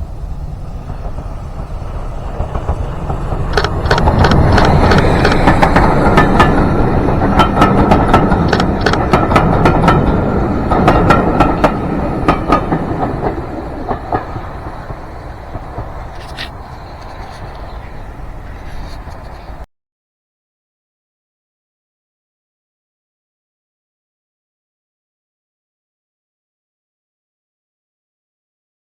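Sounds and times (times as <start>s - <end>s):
faint ringing from wheels and rails: 0.0s - 19.7s
train rumbling past: 0.0s - 19.7s
wheels clicking over rail joints: 0.0s - 19.7s.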